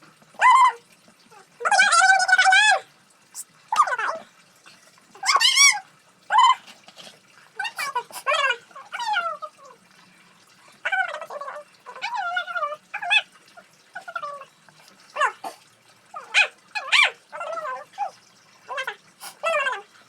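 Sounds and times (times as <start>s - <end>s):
dog whining and yelping: 0.4s - 2.8s, 3.7s - 4.3s, 5.2s - 6.7s, 7.6s - 9.8s, 10.8s - 13.3s, 13.9s - 20.0s.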